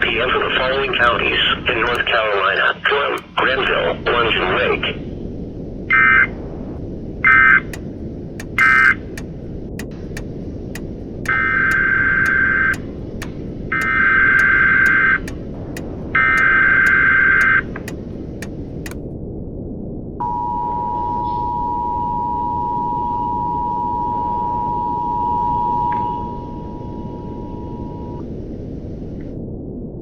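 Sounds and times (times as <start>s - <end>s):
radio hiss with clicks: 0.0s - 4.9s, 7.3s - 19.0s.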